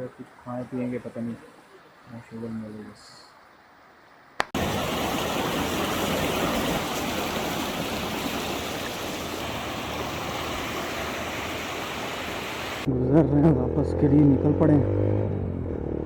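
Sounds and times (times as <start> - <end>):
river water rushing: 4.6 - 12.9.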